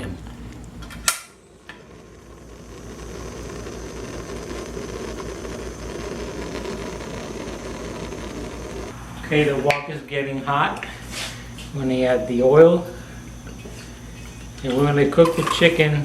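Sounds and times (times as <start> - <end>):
gas burner rushing: 0.0 - 16.0
gas stove igniter click: 0.8 - 1.8.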